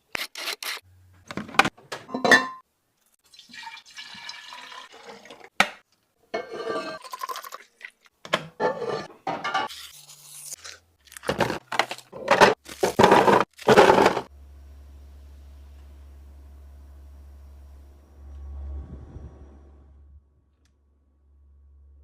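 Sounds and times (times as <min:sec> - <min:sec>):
liquid pouring: 0:03.3 - 0:05.5, 0:07.0 - 0:08.0
plastic containers knocking and rattling: 0:11.3 - 0:14.3
low steady hum: 0:14.3 - 0:22.0.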